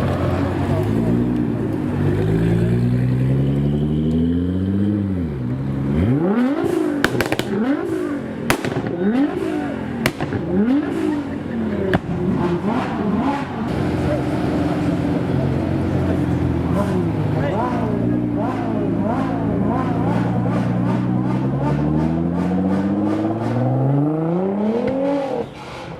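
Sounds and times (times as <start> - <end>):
car engine revving: 0.0 - 25.9
exhaust pops and cracks: 7.0 - 7.6, 8.5 - 11.2.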